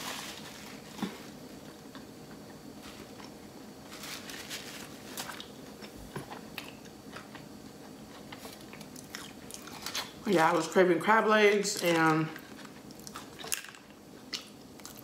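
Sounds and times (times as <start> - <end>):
person chewing: 5.2 - 10.2, 12.5 - 13.6.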